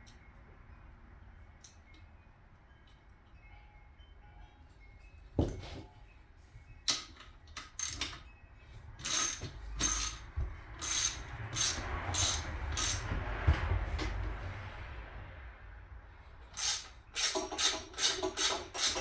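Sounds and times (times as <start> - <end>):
ratchet wrench clicking: 7.6 - 8.2, 9.0 - 13.1, 16.5 - 19.0.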